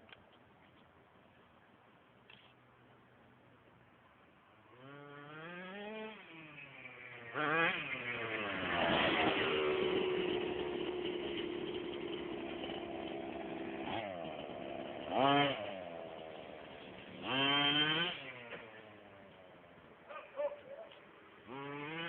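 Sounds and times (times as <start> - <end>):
small two-stroke engine revving: 4.7 - 22.0.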